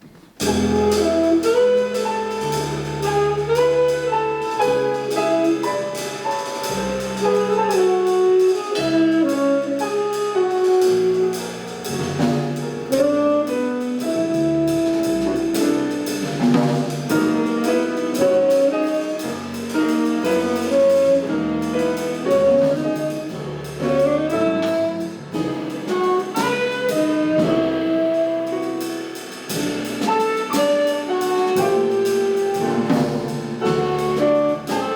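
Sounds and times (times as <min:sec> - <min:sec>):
drum kit with cymbals: 0:00.0 - 0:34.9
piano: 0:00.0 - 0:34.9
double bass: 0:00.3 - 0:34.9
saxophone melody: 0:25.9 - 0:28.8.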